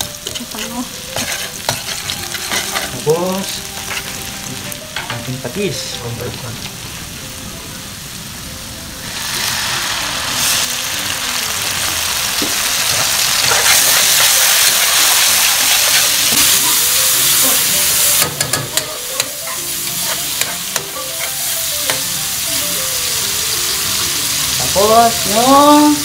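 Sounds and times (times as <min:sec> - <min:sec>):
onion and garlic sizzling in oil: 0:00.0 - 0:26.0
spatula scraping a wok: 0:00.2 - 0:03.2, 0:03.8 - 0:04.2, 0:12.8 - 0:22.0.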